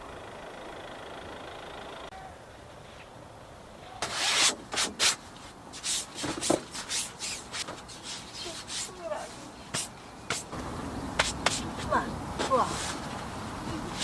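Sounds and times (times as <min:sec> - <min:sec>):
rough scraping and rubbing: 0:04.0 - 0:10.6, 0:11.2 - 0:13.3.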